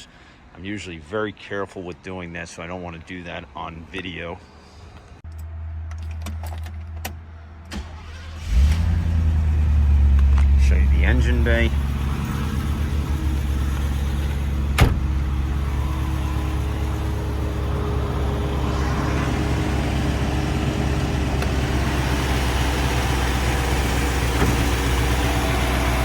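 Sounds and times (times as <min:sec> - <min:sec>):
car engine idling: 0:07.7 - 0:26.0
engine hiss: 0:10.6 - 0:26.0.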